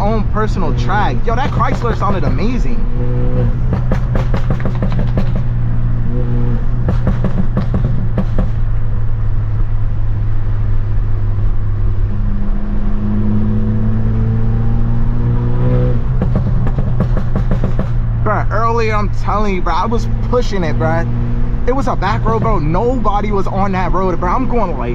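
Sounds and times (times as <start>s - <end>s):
sharp exhaust cracks: 0.0s - 9.0s
car exhaust droning: 0.0s - 24.9s.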